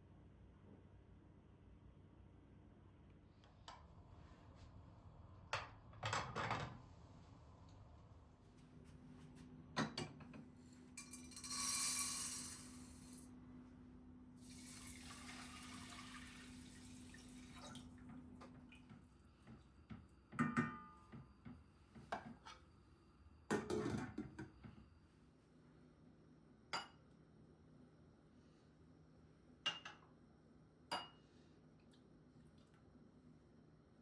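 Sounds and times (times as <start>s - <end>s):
tableware clinks: 11.0s - 13.2s
water running: 14.4s - 18.8s.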